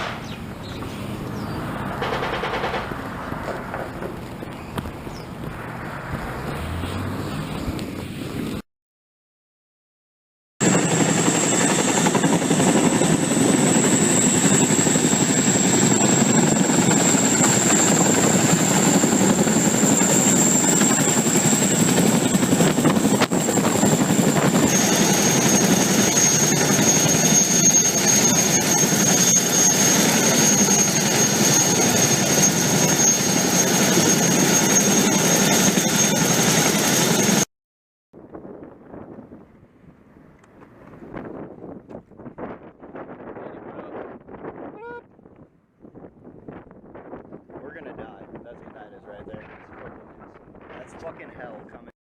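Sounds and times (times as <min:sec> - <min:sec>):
turbine engine whine: 0:00.0 - 0:08.6, 0:10.6 - 0:37.5
loud rushing noise: 0:00.9 - 0:08.5.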